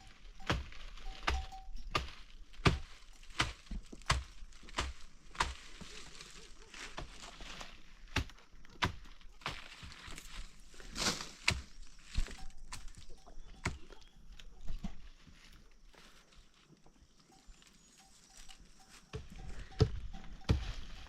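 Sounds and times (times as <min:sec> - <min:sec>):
sharp chopping strikes: 0:00.5 - 0:05.8.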